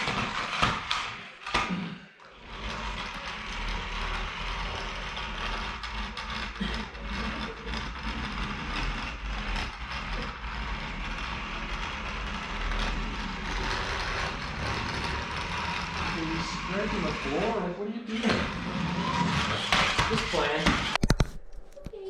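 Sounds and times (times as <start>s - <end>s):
vehicle engine running: 2.7s - 17.6s.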